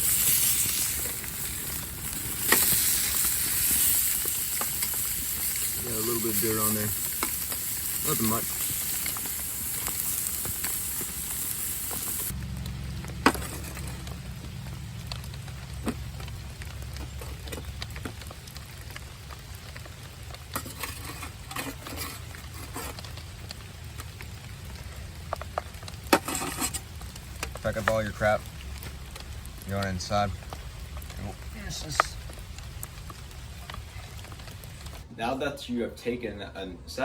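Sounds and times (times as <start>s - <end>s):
potatoes sizzling in a pan: 0.0s - 35.0s
low rumble: 6.9s - 20.6s, 26.7s - 35.1s.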